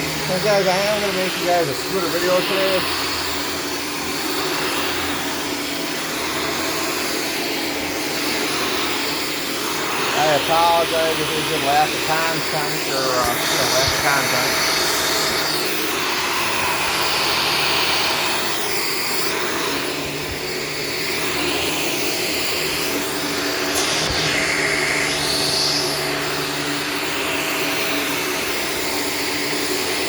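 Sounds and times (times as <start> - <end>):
vacuum cleaner running on carpet: 0.0 - 30.0.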